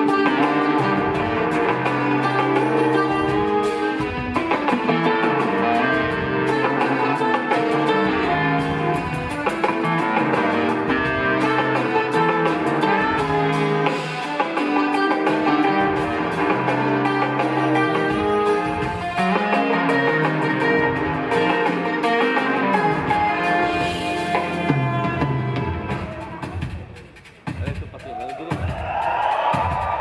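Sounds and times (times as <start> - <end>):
jazz fusion band playing live: 0.0 - 30.0
drum hits: 23.1 - 30.0.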